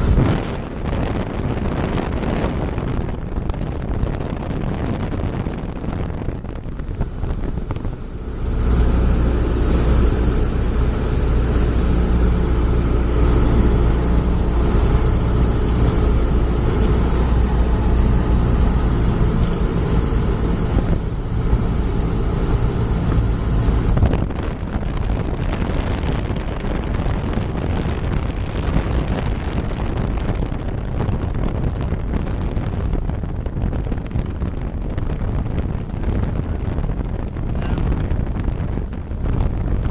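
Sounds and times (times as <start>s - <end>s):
aircraft engine drone: 0.0s - 30.7s
aircraft engine whine: 0.0s - 39.9s
rush of noise: 0.0s - 39.9s.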